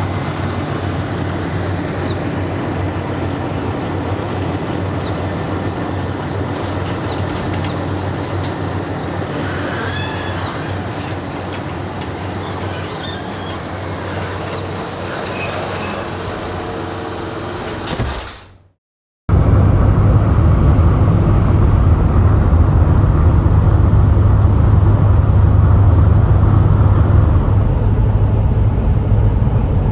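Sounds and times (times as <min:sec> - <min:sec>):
road vehicle rumbling: 0:00.0 - 0:18.0, 0:19.3 - 0:29.9
light rattles and squeaks: 0:00.2 - 0:18.5.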